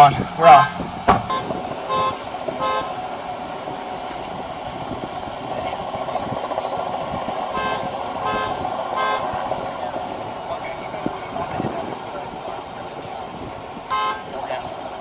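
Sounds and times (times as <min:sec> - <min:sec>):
vehicle and road noise: 0:00.0 - 0:15.0.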